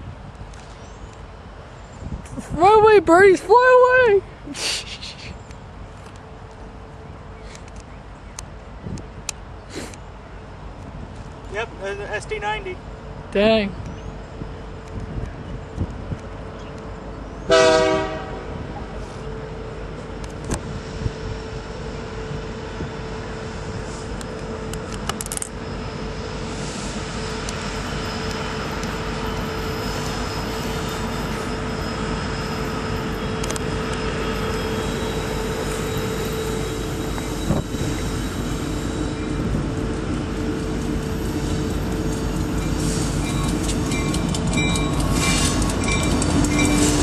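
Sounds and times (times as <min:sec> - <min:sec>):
train rumble and hum: 0:00.0 - 0:47.0
train horn blast: 0:17.5 - 0:19.2
clicks of train wheels: 0:24.0 - 0:25.6, 0:27.3 - 0:29.3, 0:33.3 - 0:34.1, 0:42.2 - 0:47.0.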